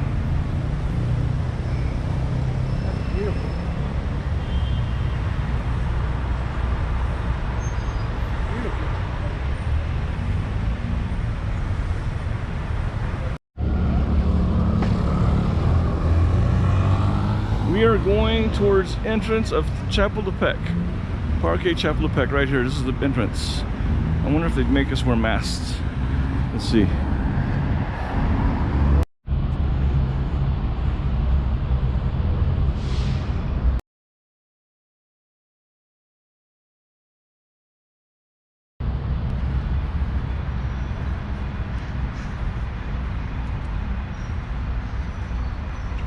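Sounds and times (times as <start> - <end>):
road traffic noise: 0.0 - 33.8, 38.8 - 46.0
passing vehicle hiss: 32.6 - 33.8.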